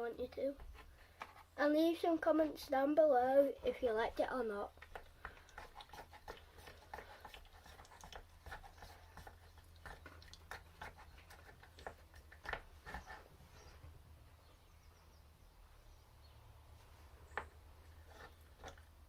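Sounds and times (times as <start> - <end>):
small objects clicking and tapping: 4.7 - 13.1.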